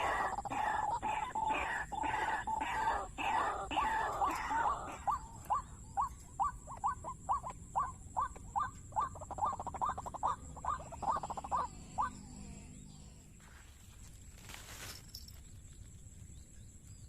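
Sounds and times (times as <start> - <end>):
waterhen calling: 0.0 - 12.2.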